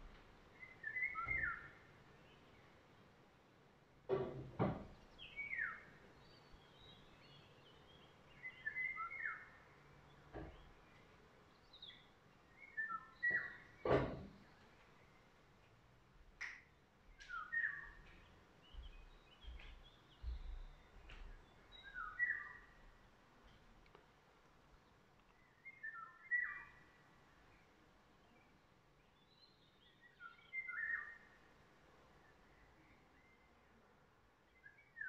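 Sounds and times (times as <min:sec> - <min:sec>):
faint steady hiss: 0:00.0 - 0:35.0
songbirds singing: 0:00.0 - 0:35.0
sharp knocks: 0:04.1 - 0:04.9, 0:13.8 - 0:14.3.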